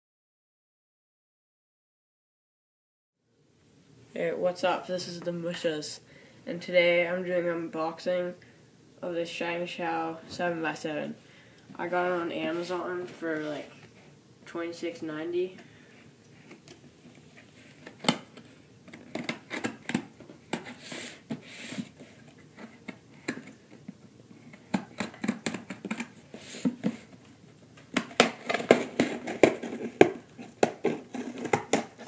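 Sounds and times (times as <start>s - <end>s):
scratches taps and rustles: 22.0s - 32.0s
packing tape being torn open: 27.9s - 32.0s.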